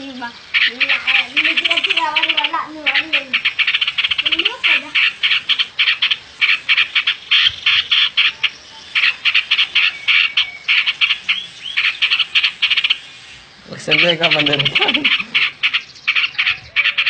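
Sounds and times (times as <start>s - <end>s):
animal clicking calls: 0.0s - 17.0s.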